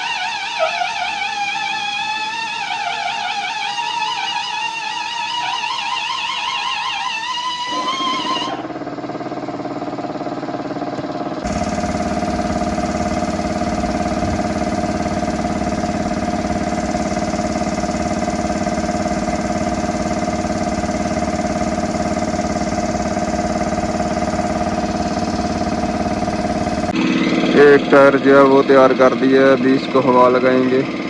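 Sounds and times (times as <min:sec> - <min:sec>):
machine running steadily: 0:11.4 - 0:27.0.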